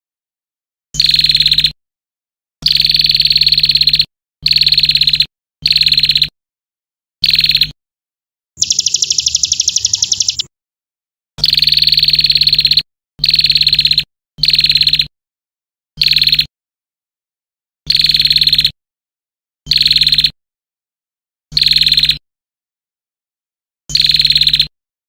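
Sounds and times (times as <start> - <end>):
songbird trill: 1.0 - 1.8, 2.6 - 6.3, 7.2 - 7.8, 8.6 - 10.5, 11.4 - 15.1, 16.0 - 16.5, 21.5 - 22.2, 23.9 - 24.7.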